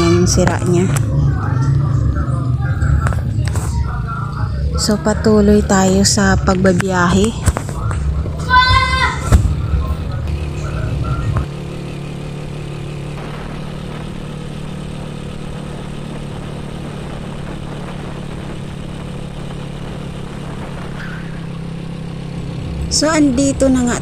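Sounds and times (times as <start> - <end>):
motorcycle engine cruising: 0.0 - 24.0
wind rumbling on microphone: 13.2 - 24.0.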